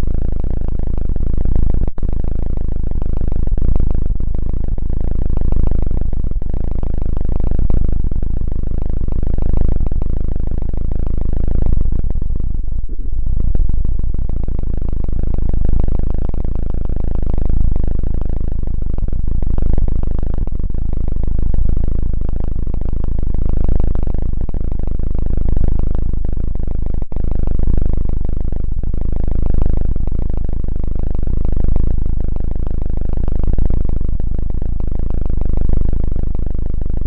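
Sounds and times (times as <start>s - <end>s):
low rumbling on microphone: 0.0s - 37.0s.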